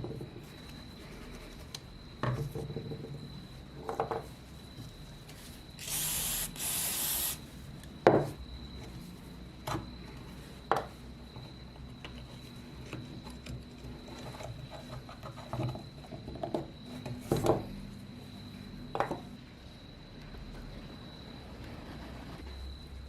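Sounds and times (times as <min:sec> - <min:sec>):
aerosol spray can hissing: 0:05.8 - 0:07.4.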